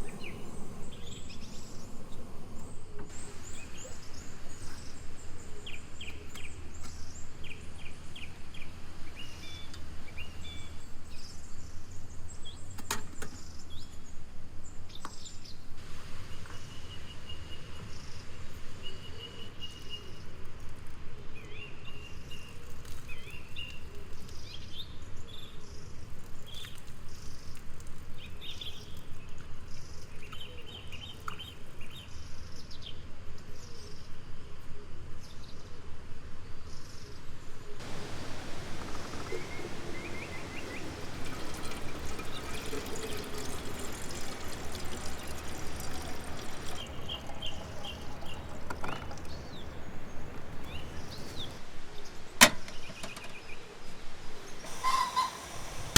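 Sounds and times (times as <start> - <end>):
small birds chirping: 0.0 - 14.2, 37.8 - 53.8
steady background noise: 34.0 - 55.9.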